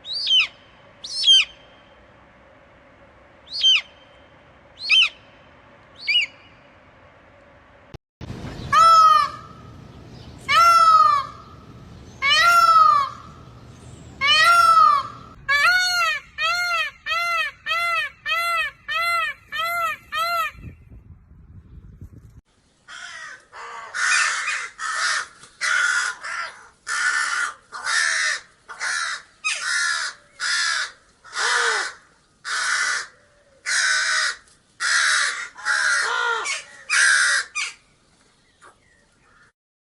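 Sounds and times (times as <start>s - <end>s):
peacock wailing calls: 8.5s - 13.6s, 14.2s - 20.6s, 22.9s - 37.8s
crows cawing: 10.5s - 11.5s, 12.2s - 13.4s, 14.2s - 16.2s, 22.9s - 37.8s.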